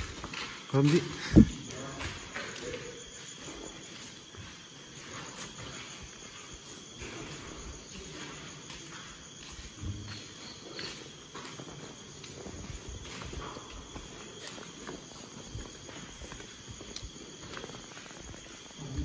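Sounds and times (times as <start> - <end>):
crickets trilling: 0.0 - 19.0
footsteps on concrete floor: 0.0 - 19.0.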